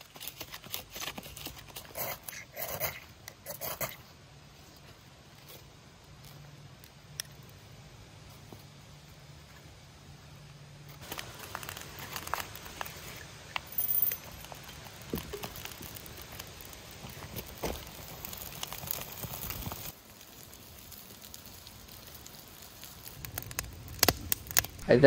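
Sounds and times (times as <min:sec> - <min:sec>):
birch bark crinkling: 0:00.0 - 0:04.0, 0:10.9 - 0:24.8
bark crackling as it burns: 0:00.0 - 0:25.0.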